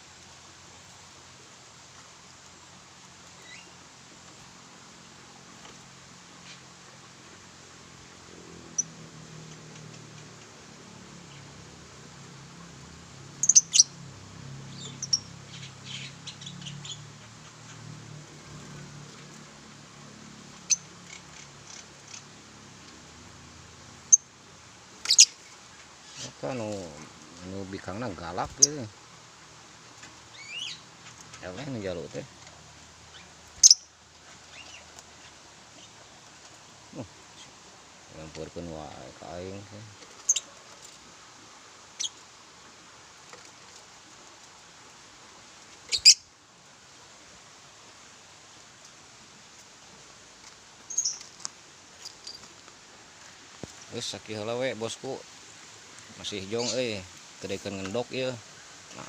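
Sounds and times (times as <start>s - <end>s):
faint steady hiss: 0.0s - 59.0s
lovebirds chirping: 3.3s - 3.8s, 8.6s - 10.3s, 13.4s - 14.0s, 14.6s - 19.2s, 20.5s - 22.4s, 25.0s - 29.0s, 30.1s - 32.3s, 33.0s - 36.1s, 36.8s - 40.6s, 41.9s - 42.3s, 45.8s - 46.3s, 50.8s - 52.6s, 56.0s - 59.0s.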